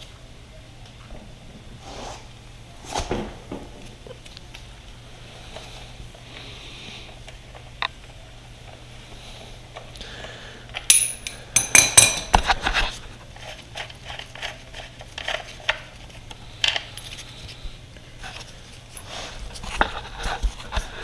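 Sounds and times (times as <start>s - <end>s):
metal tools clinking: 10.8s - 12.4s
ringing metallic clatter: 10.9s - 12.4s.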